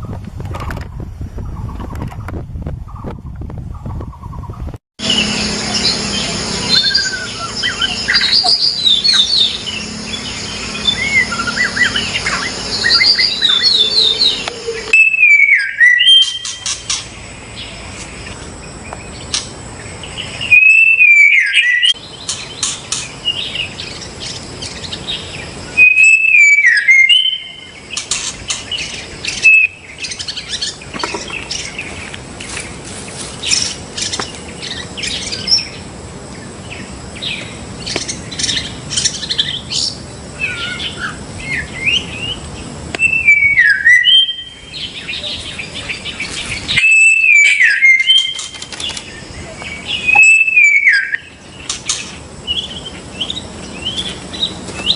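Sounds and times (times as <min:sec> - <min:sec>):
bird singing whistled phrases: 0:05.0 - 0:16.7, 0:20.2 - 0:22.0, 0:25.8 - 0:27.8, 0:28.7 - 0:30.8, 0:43.0 - 0:48.5, 0:49.7 - 0:51.4
loud falling bird whistle: 0:10.7 - 0:16.8, 0:20.4 - 0:22.0, 0:25.8 - 0:27.7, 0:29.3 - 0:29.8, 0:43.0 - 0:44.6, 0:46.7 - 0:48.6, 0:50.0 - 0:51.3.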